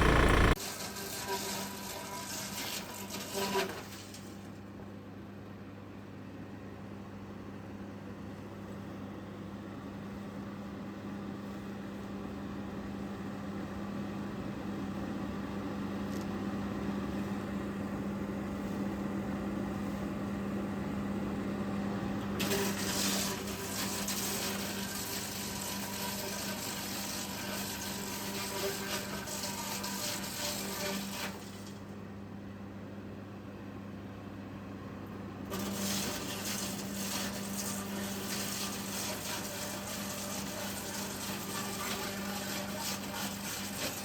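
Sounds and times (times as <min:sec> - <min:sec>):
sudden loud hiss: 0:00.0 - 0:00.6
wood chipper humming: 0:00.0 - 0:00.6.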